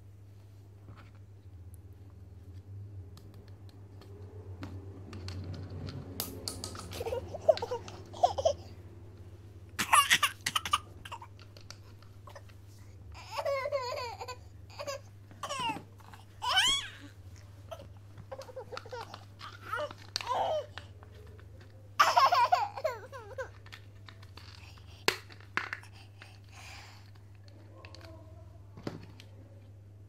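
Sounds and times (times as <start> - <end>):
small child babbling and laughing: 6.8 - 8.8, 9.8 - 11.3, 13.2 - 21.2, 22.0 - 23.7.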